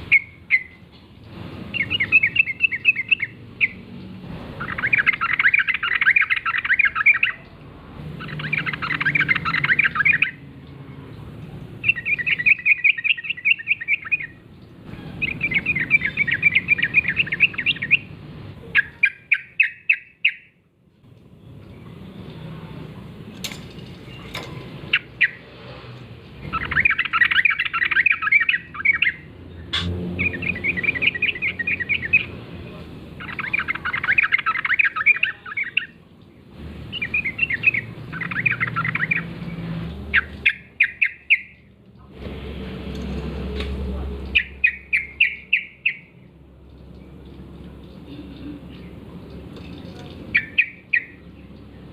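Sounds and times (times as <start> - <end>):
bulbuls chattering song: 0.0 - 42.3, 44.2 - 51.9
sharp clicks: 29.7 - 29.9.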